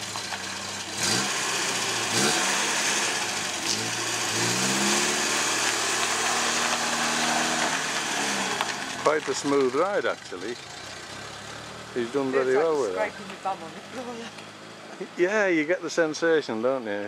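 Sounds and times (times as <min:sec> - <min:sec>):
car engine revving: 0:00.0 - 0:15.4.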